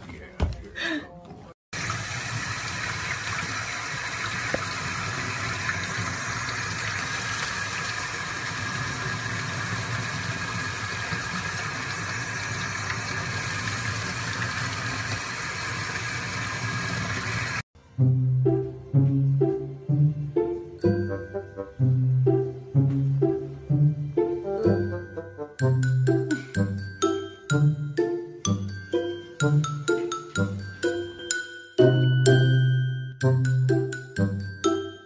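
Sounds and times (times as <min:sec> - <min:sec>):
faucet water running: 0:01.8 - 0:17.7.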